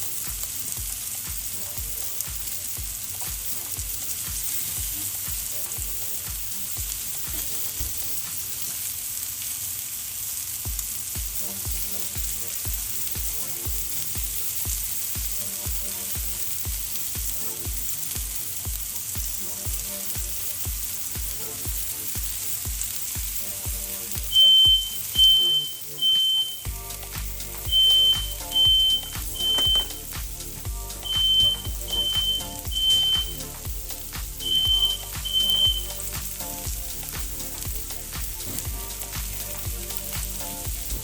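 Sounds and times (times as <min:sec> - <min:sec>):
background music with a beat: 0:00.0 - 0:08.7, 0:10.7 - 0:41.0
mushrooms sizzling in a skillet: 0:00.0 - 0:41.0
loud high electronic beep: 0:11.4 - 0:22.6, 0:23.3 - 0:41.0.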